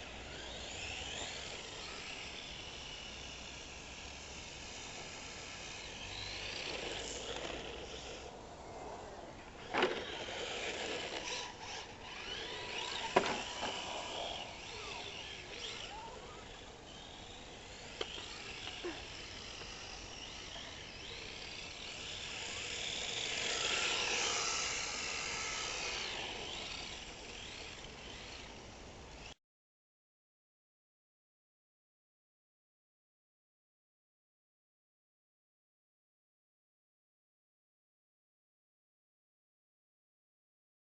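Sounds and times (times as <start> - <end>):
rc car motor whine: 0.0 - 29.4.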